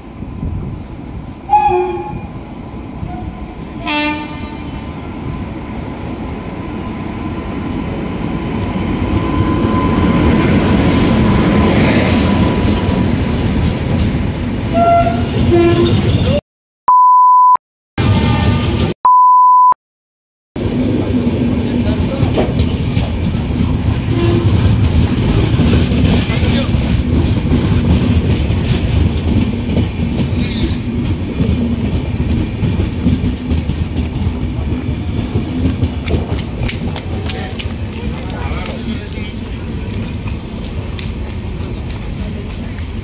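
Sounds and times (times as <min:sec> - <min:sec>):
train rumbling past: 0:00.0 - 0:16.4, 0:20.6 - 0:43.0
train horn blasts: 0:01.5 - 0:02.3, 0:03.8 - 0:04.8, 0:14.7 - 0:16.1, 0:24.1 - 0:24.7
short steady beeps: 0:16.9 - 0:17.6, 0:19.1 - 0:19.8.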